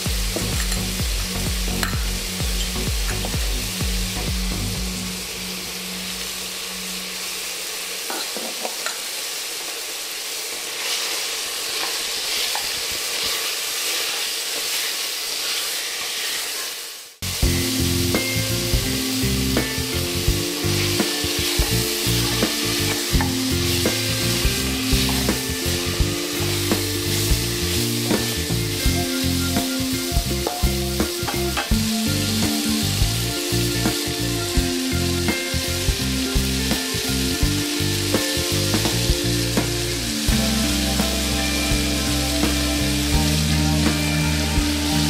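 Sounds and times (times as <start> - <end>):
curry sizzling in a pan: 0.0 - 45.0.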